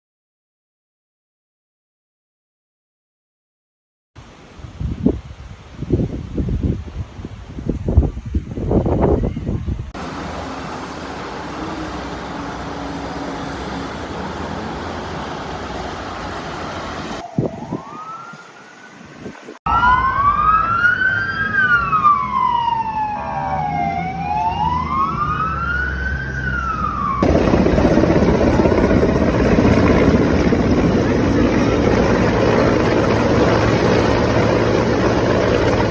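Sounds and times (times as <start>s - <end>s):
loud rushing noise: 10.0s - 17.2s, 26.2s - 35.9s
emergency siren wailing: 10.4s - 35.9s
steady rushing noise: 26.4s - 35.9s.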